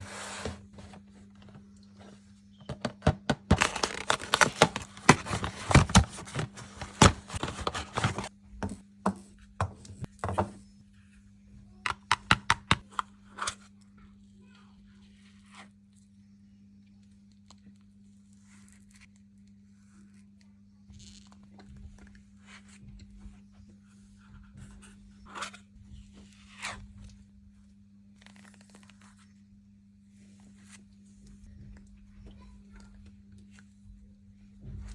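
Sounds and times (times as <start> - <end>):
packaging crinkling and tearing: 3.3 - 8.3.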